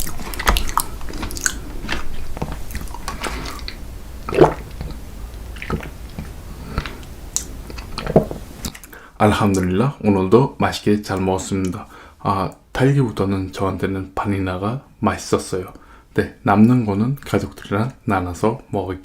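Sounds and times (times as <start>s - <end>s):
chewing and biting with wet clicks: 0.0s - 8.8s.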